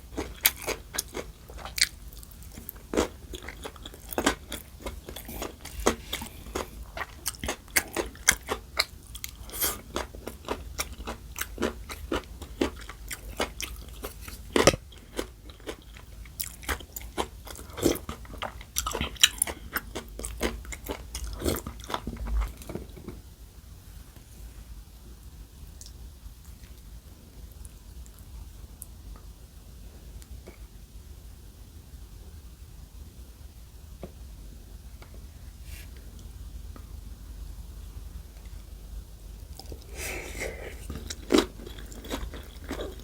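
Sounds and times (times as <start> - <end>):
chewing crunchy food: 0.0 - 23.2, 39.5 - 43.0.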